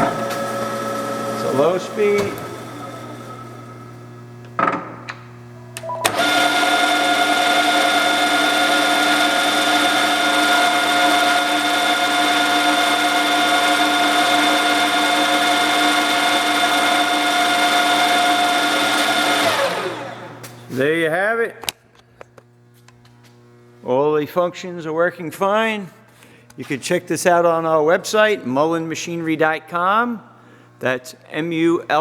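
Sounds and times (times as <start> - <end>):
milling machine gear whine: 0.0 - 4.5, 6.0 - 20.5.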